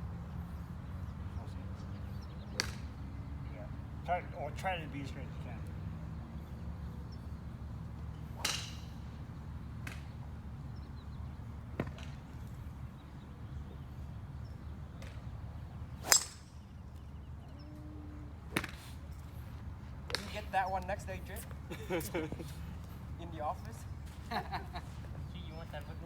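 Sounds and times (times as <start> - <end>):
golf club striking ball: 8.4 - 9.0, 16.0 - 16.7.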